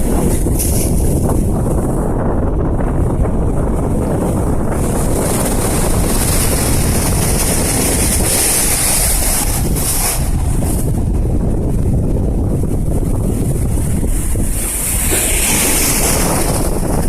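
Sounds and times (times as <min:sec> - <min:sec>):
wind buffeting microphone: 0:00.0 - 0:17.0
sea waves washing: 0:03.8 - 0:17.0
surf hissing: 0:04.7 - 0:11.2, 0:13.7 - 0:17.0.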